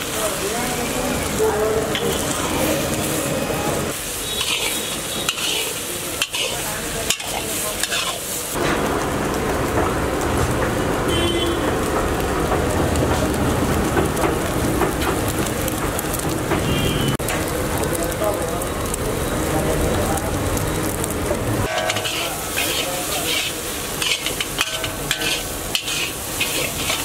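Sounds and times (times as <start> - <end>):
eggs sizzling in a pan: 0.0 - 15.4, 16.2 - 27.0
metal spatula scraping a pan: 4.3 - 8.4, 21.7 - 27.0.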